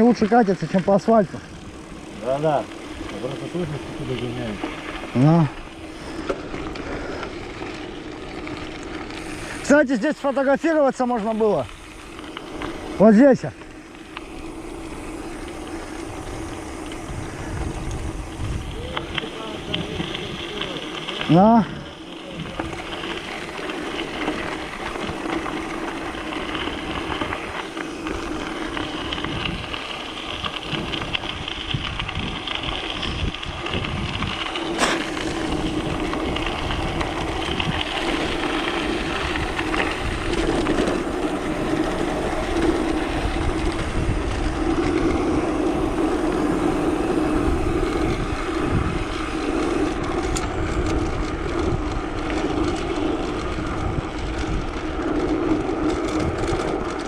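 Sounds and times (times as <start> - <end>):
bike tyres rolling: 0.0 - 57.0
wind rushing over microphone: 14.4 - 57.0.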